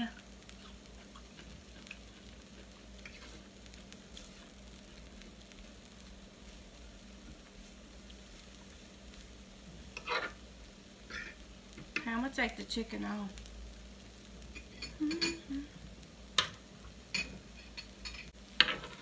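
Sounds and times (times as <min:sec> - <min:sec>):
meat sizzling on a grill: 0:00.0 - 0:19.0.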